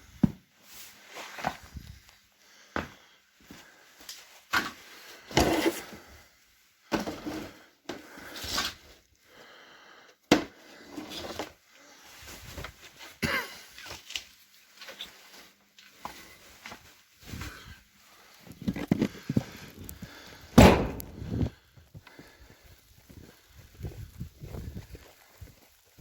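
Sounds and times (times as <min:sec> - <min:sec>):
sharp knocks: 0:20.6 - 0:21.2.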